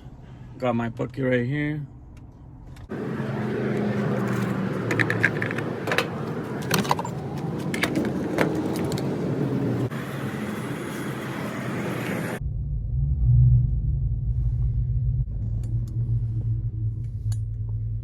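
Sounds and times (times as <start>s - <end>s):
keys jingling: 4.0s - 9.2s.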